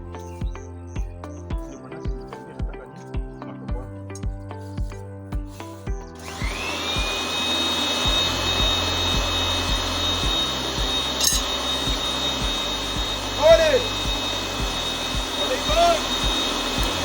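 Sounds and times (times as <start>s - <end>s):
music with steady beat: 0.0s - 17.0s
electric motor whining: 6.1s - 17.0s
loud rushing hiss: 6.2s - 17.0s.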